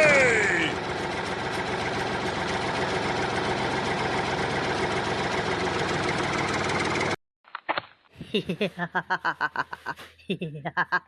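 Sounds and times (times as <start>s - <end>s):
tractor engine idling: 0.0s - 7.2s.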